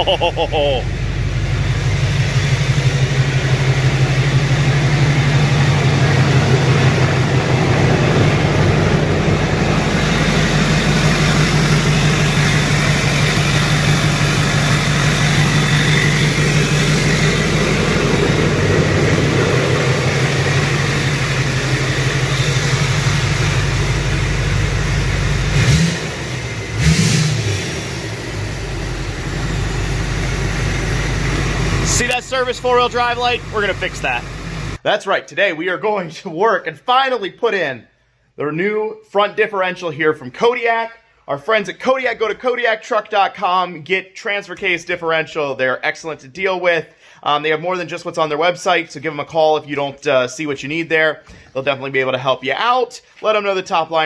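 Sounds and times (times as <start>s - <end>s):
diesel engine idling and revving: 0.0s - 34.8s.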